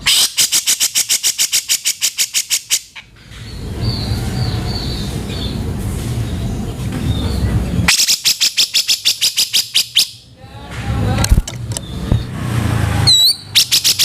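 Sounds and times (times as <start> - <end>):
bird rattling chatter: 0.0 - 3.0
steady low rumbling: 3.1 - 7.9, 10.2 - 13.5.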